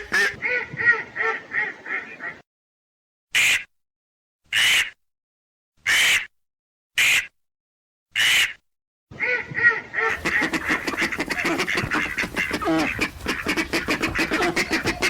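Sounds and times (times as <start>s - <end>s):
ducks quacking: 0.0s - 2.4s, 9.2s - 15.0s.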